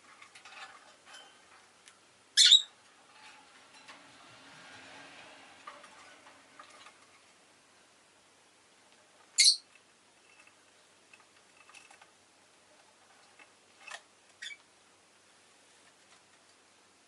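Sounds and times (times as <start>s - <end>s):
lovebird chirping: 2.4s - 2.8s, 9.3s - 9.7s, 14.4s - 14.6s.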